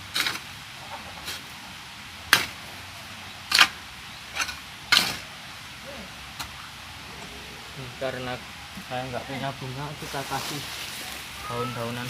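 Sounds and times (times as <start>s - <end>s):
scraping in loose soil: 9.6s - 11.4s.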